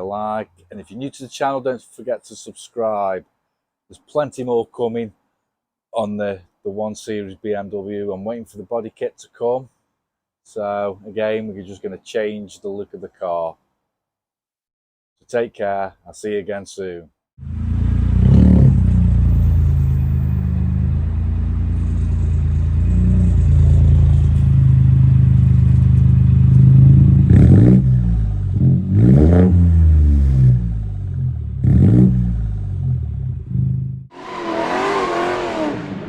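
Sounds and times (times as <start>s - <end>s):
car engine revving: 17.4s - 36.0s.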